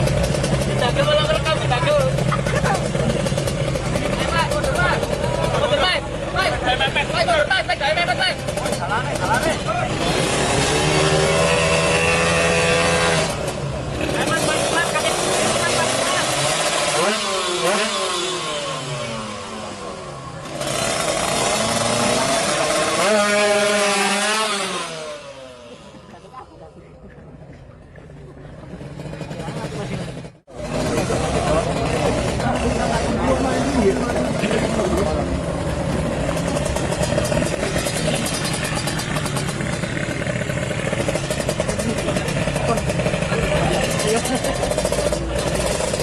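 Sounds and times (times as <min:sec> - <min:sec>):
two-stroke motorcycle engine revving: 0:00.0 - 0:26.6, 0:28.5 - 0:46.0.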